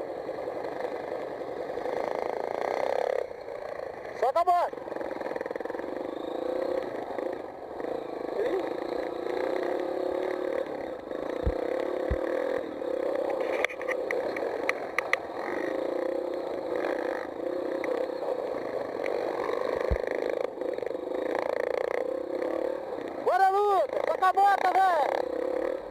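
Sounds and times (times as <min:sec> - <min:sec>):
motocross bike engine running: 0:00.0 - 0:25.9
sharp clicks: 0:13.3 - 0:15.3.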